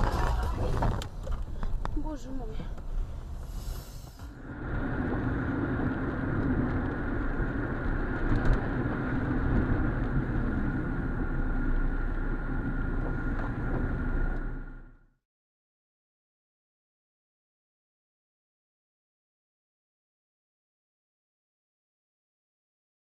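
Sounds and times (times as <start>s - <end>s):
car engine and road rumble: 0.0s - 15.1s.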